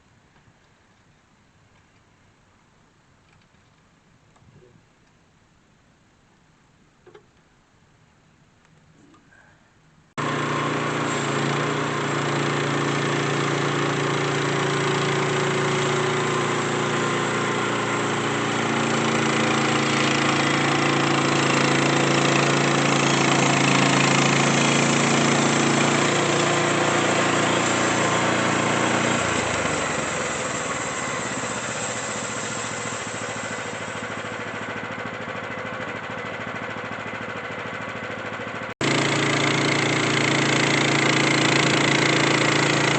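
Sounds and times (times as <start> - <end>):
sawmill engine running under load: 10.2 - 42.9.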